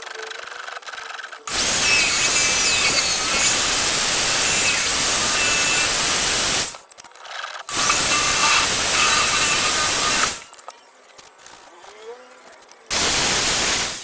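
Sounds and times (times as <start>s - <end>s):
power tool running on metal: 1.5s - 6.8s, 7.7s - 10.5s.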